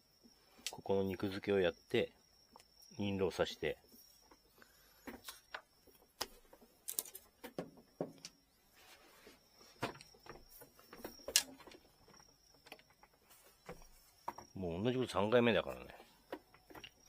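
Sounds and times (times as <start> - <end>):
hands tapping and scraping bamboo rod: 3.9 - 17.0.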